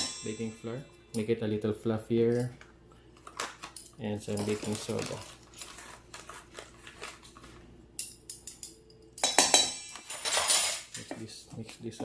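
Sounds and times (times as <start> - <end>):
utensils clinking against bowl: 3.3 - 5.9, 8.0 - 11.3.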